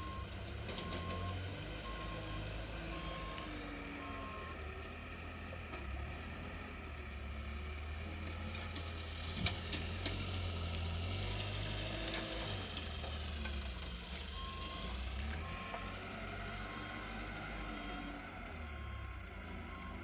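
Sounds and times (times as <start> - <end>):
reversing alarm beeps: 0.0 - 4.8, 14.3 - 20.0
truck engine running: 0.0 - 20.0.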